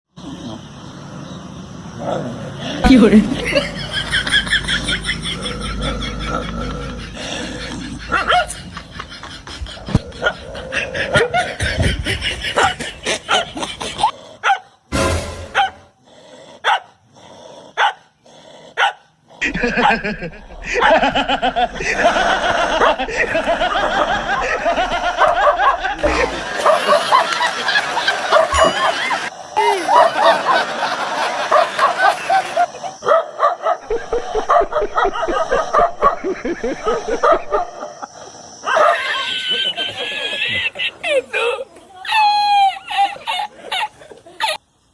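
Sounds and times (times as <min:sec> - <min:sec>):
dog barking: 0:08.1 - 0:08.6, 0:14.4 - 0:14.7, 0:15.6 - 0:15.9, 0:16.6 - 0:17.0, 0:17.8 - 0:18.1, 0:18.8 - 0:19.1, 0:20.7 - 0:21.1, 0:24.8 - 0:27.2, 0:28.2 - 0:28.9, 0:29.9 - 0:30.4, 0:31.5 - 0:32.0, 0:32.6 - 0:38.0, 0:38.7 - 0:39.1.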